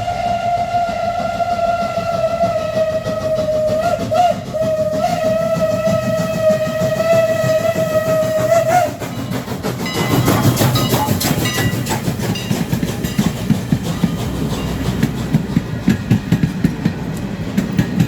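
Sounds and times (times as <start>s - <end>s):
steam whistle blast: 0.0s - 9.0s
passing train rumble: 0.0s - 18.0s
wheels clattering on rails: 0.4s - 18.0s.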